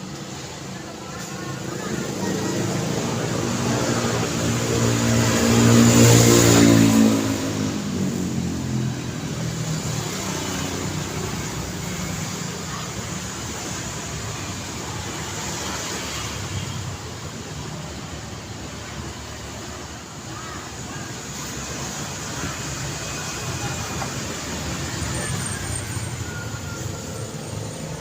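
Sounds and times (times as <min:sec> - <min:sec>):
road traffic hum: 0:00.0 - 0:28.0
vehicle engine passing by: 0:01.7 - 0:12.5.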